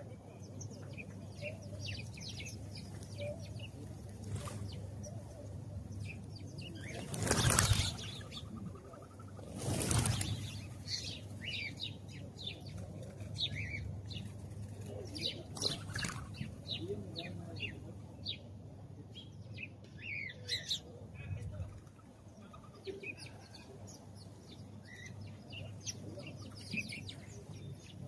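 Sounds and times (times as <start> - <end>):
sparrows chirping: 0.0 - 28.0
wings flapping: 6.9 - 8.4, 9.5 - 10.7, 15.5 - 16.4.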